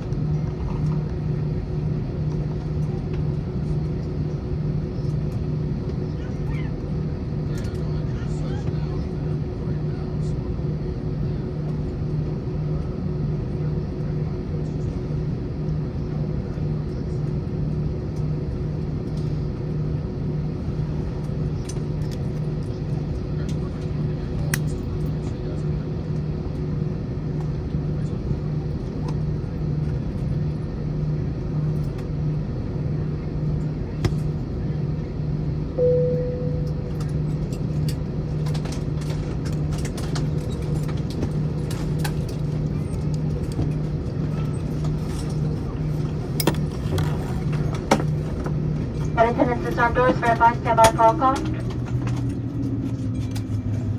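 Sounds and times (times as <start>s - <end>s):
airplane cabin rumble: 0.0s - 53.9s
pulsing hum: 35.7s - 38.6s
cabin chime: 35.8s - 37.1s
clicks in cabin: 49.7s - 52.4s.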